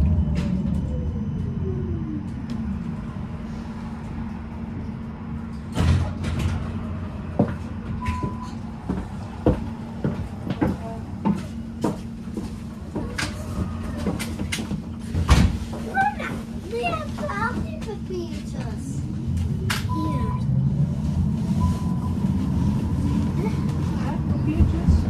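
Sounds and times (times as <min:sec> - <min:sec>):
tram electrical hum: 0:00.0 - 0:25.0.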